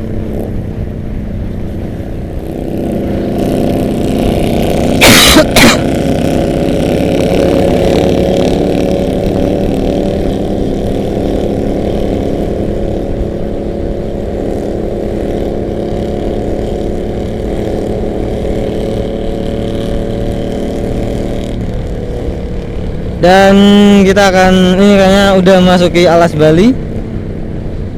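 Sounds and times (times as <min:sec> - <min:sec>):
motorcycles cruising: 0:00.0 - 0:27.9
loud engine bursts: 0:04.9 - 0:06.0.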